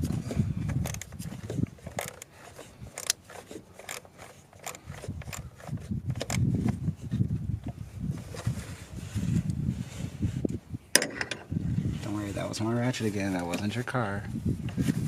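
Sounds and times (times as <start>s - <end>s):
hand tools clicking and scraping: 0.0s - 6.8s.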